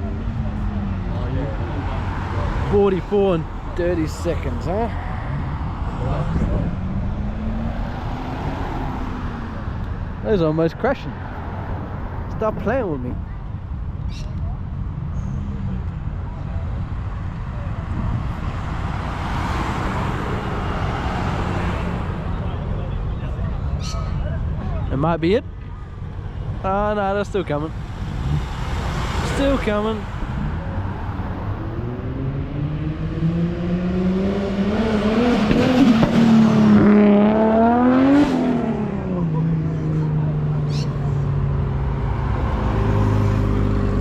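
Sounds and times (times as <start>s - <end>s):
low rumble of engines: 0.0s - 44.0s
car driving past: 0.3s - 9.8s, 27.5s - 44.0s.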